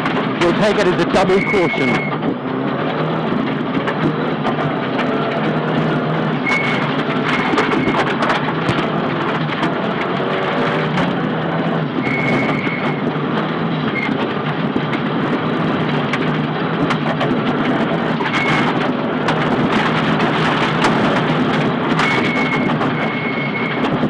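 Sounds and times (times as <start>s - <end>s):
car engine running: 0.0s - 11.9s
tyre and road noise: 0.0s - 24.0s.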